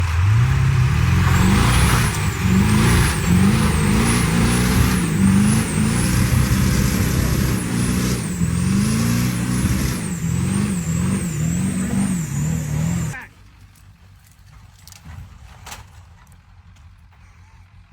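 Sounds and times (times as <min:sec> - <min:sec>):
truck engine revving: 0:00.0 - 0:13.2.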